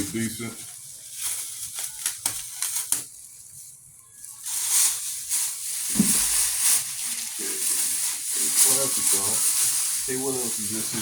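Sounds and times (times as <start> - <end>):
plastic packaging crinkling: 0.0 - 11.0
dull thump: 5.9 - 6.3.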